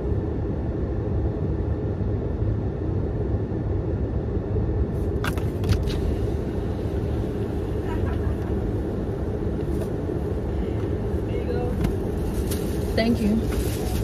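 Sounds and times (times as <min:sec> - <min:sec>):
car engine idling: 0:05.0 - 0:14.0.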